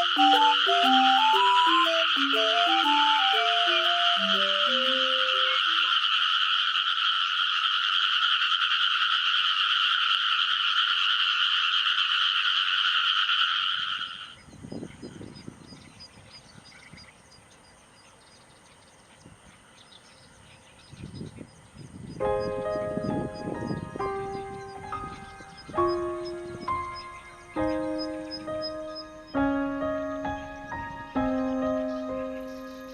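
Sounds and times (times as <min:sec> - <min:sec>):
chorus of frogs calling: 0:00.0 - 0:14.4, 0:22.4 - 0:32.9.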